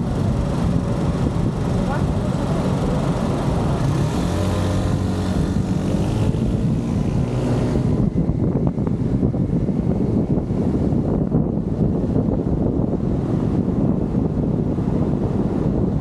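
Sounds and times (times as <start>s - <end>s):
car engine pulling away: 0.0s - 10.2s
wind buffeting the microphone: 0.0s - 16.0s.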